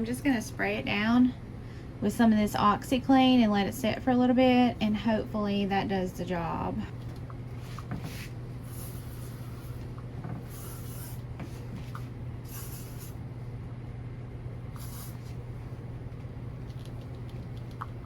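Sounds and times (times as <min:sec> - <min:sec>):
steady low hum: 0:00.0 - 0:18.0
spray bottle squirts: 0:10.4 - 0:11.2, 0:11.9 - 0:13.2, 0:14.8 - 0:15.3.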